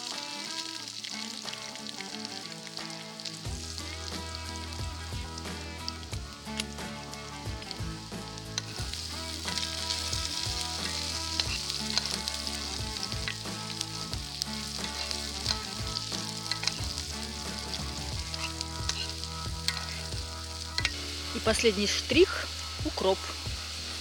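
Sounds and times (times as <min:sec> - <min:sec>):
mushrooms sizzling in a skillet: 0:00.0 - 0:24.0
metal spoon scraping a pan: 0:05.4 - 0:21.5.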